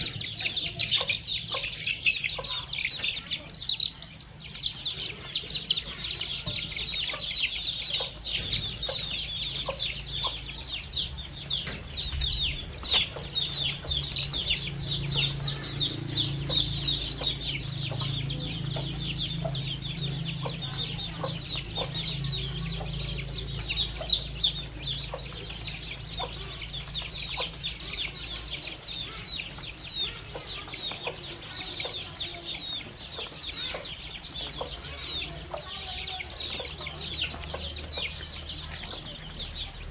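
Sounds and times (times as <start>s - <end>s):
baby chicks peeping: 0.0s - 39.9s
low rumble: 8.5s - 28.0s.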